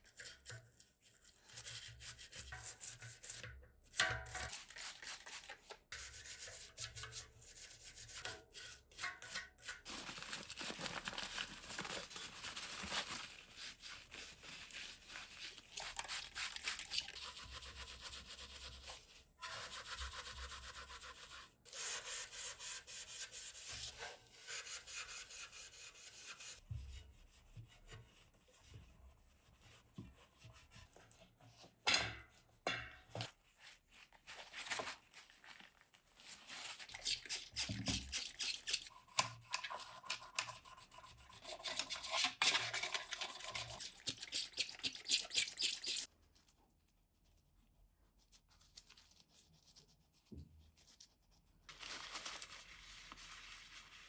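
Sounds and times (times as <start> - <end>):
hand scrubbing bicycle parts: 36.7 - 46.1.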